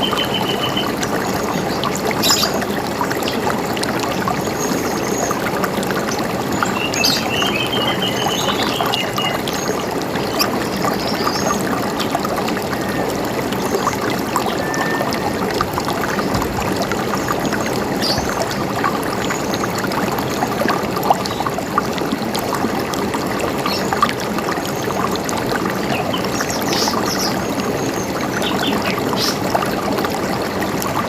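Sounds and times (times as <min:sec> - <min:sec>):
river water running: 0:00.0 - 0:31.0
birds trilling: 0:06.7 - 0:16.4.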